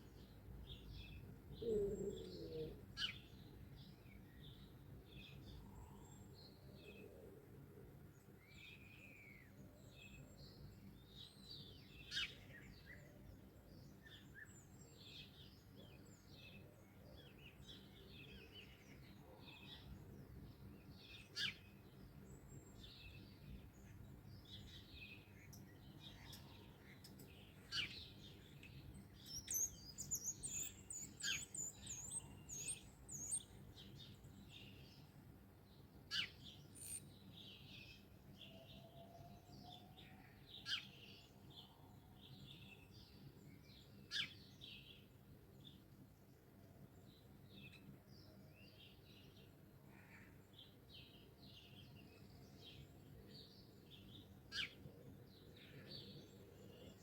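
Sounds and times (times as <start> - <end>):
songbirds chirping and singing: 0.0 - 57.0.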